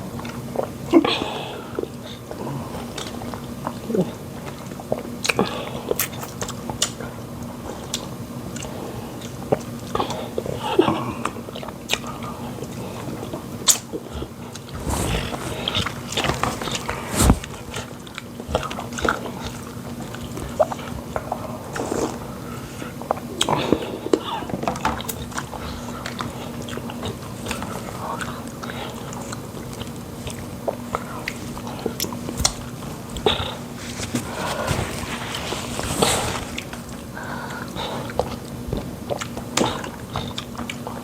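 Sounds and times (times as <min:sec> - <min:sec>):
faint steady hum: 0:00.0 - 0:41.0
chewing and lip smacks: 0:37.5 - 0:41.0.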